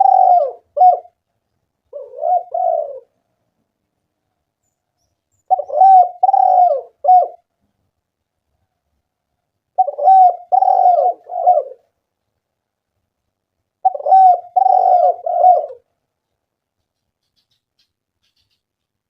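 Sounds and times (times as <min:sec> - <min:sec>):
dove cooing: 0:00.0 - 0:01.2, 0:01.9 - 0:03.2, 0:05.5 - 0:07.5, 0:09.8 - 0:12.0, 0:13.8 - 0:15.9.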